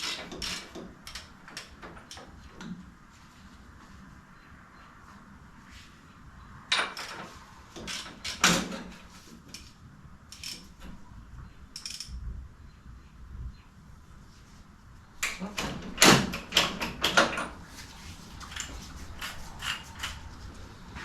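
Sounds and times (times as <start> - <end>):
tools knocking and clanking: 15.2 - 17.6.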